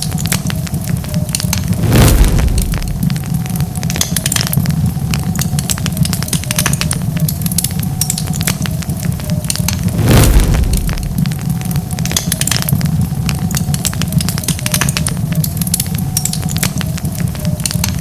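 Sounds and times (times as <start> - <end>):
low rumble of flames: 0.0 - 18.0
wood fire crackling: 0.0 - 18.0
fire flare-up burst: 1.6 - 3.9, 9.7 - 12.0.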